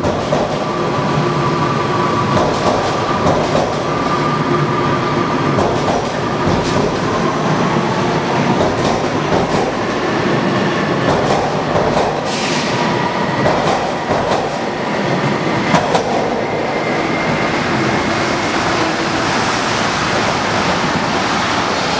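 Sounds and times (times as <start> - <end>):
subway train rumble: 0.0 - 21.9
wheels clacking over rail joints: 2.3 - 4.0, 5.5 - 7.3, 8.4 - 14.8.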